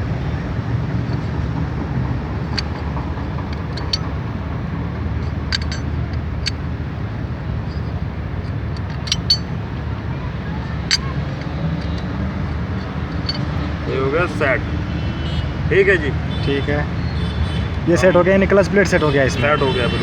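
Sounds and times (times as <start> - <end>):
road traffic rumble: 0.0 - 20.0
metallic clinks of clutch parts: 0.6 - 13.9.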